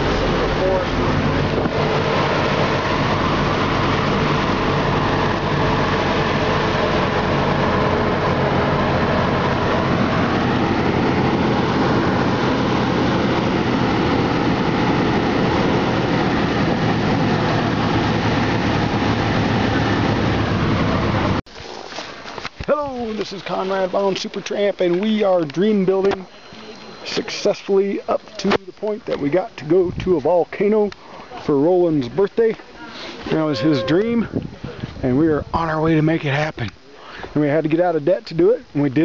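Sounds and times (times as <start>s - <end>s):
bus engine running: 0.0s - 21.4s
road noise: 0.0s - 39.0s.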